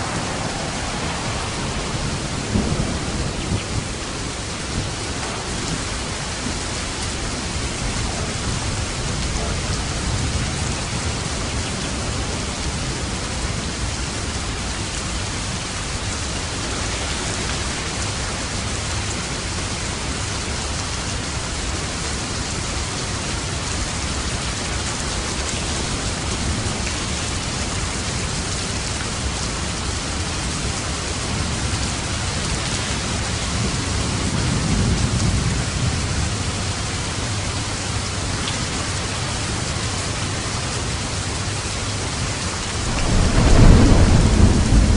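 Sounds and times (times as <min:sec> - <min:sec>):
low roll of thunder: 0:00.0 - 0:18.2, 0:42.6 - 0:44.9
heavy rain falling: 0:00.0 - 0:44.9.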